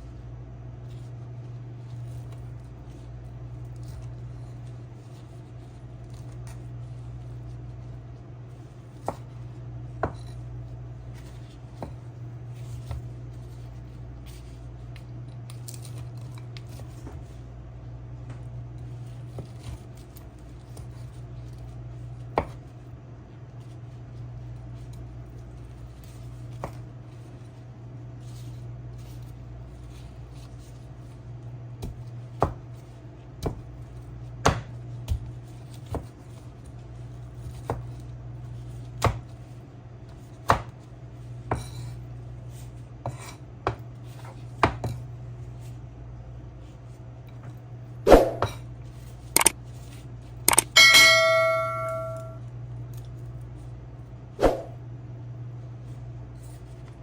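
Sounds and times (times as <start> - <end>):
knife chopping on cutting board: 10.0 - 10.4, 22.4 - 22.6, 31.8 - 32.6, 33.4 - 33.7, 34.4 - 35.3, 39.0 - 39.3, 40.4 - 40.8, 43.0 - 45.0
low hum: 50.5 - 52.6.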